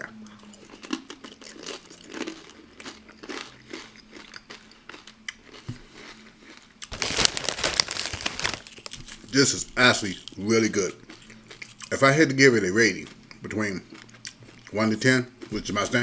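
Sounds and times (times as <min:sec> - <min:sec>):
crunching tortilla chips: 0:00.8 - 0:12.0
crinkling: 0:06.8 - 0:09.4.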